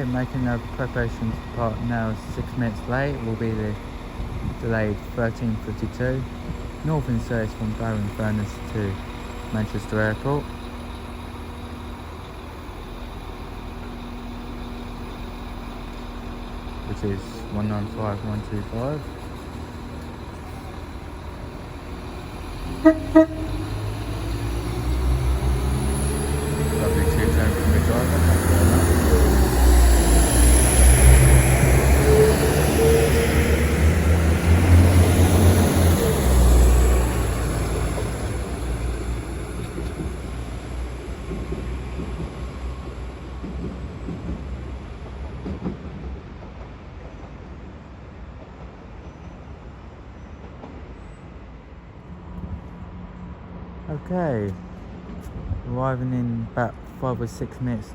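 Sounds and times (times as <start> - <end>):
low rumble of train: 0.0 - 57.9
two-tone train horn blasts: 22.7 - 24.5.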